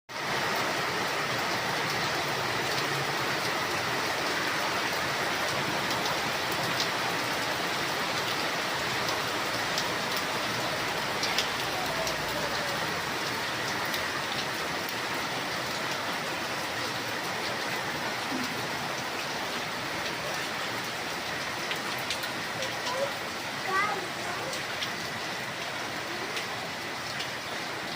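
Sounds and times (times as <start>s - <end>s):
steady rainfall: 0.1s - 27.9s
raindrop ticks: 8.2s - 15.0s, 21.4s - 27.4s.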